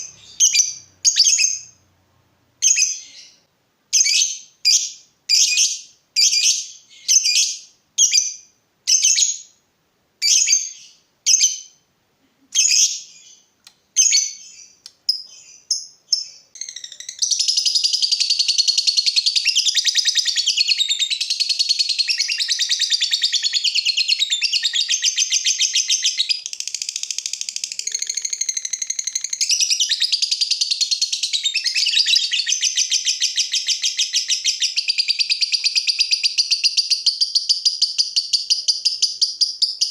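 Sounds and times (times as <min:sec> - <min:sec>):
lovebird rapid chattering song: 0:00.0 - 0:01.7, 0:14.0 - 0:39.9
lovebird sharp high chirps: 0:00.0 - 0:01.8, 0:02.6 - 0:09.5, 0:10.2 - 0:11.8, 0:12.5 - 0:39.9.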